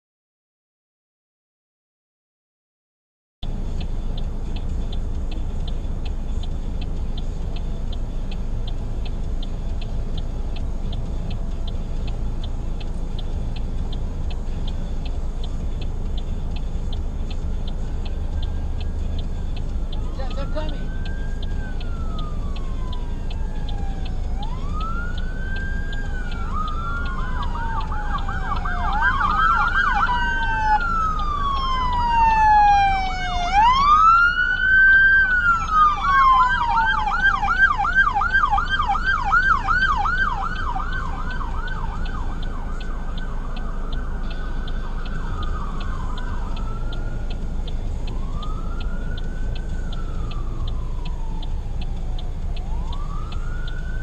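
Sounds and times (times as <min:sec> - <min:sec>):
low rumble of traffic: 0:03.4 - 0:54.0
siren wailing: 0:19.6 - 0:54.0
siren yelp: 0:19.9 - 0:47.3, 0:48.2 - 0:54.0.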